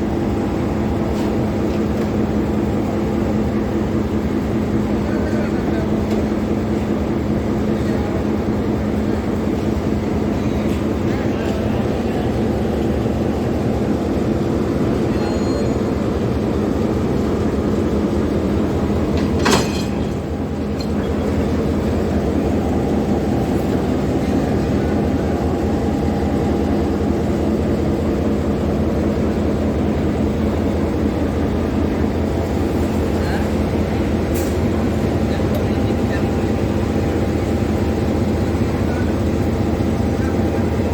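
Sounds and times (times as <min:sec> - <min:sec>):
diesel locomotive engine idling: 0:00.0 - 0:40.9
sharp metal clank: 0:19.4 - 0:20.2.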